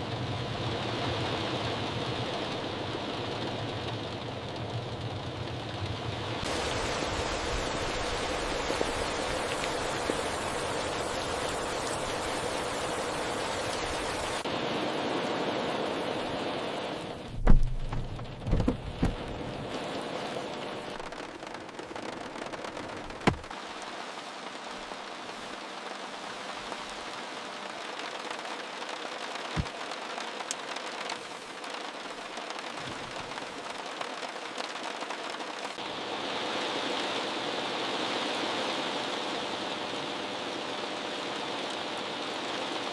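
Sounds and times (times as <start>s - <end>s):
heavy rain falling: 0.0s - 42.9s
thuds: 17.3s - 19.4s, 23.1s - 23.5s.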